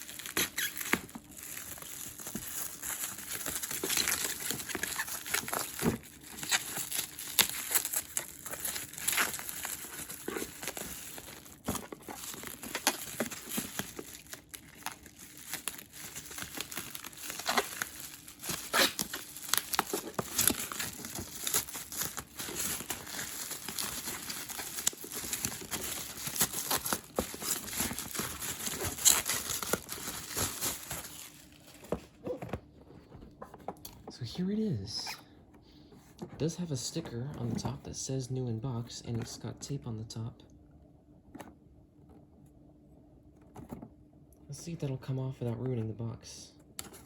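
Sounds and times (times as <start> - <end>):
bubble wrap crinkling: 0.0 - 32.4.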